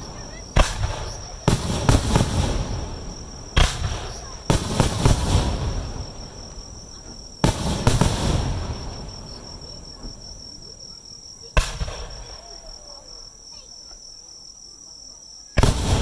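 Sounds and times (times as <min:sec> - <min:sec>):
firework shells bursting: 0:00.0 - 0:10.8, 0:11.5 - 0:12.9, 0:15.6 - 0:16.0
insects trilling: 0:00.0 - 0:16.0.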